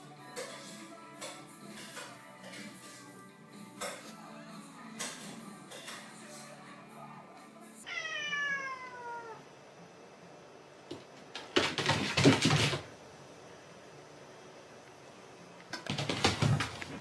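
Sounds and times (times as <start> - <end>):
cat meowing: 7.8 - 9.5
cat harsh outbursts: 7.9 - 9.4.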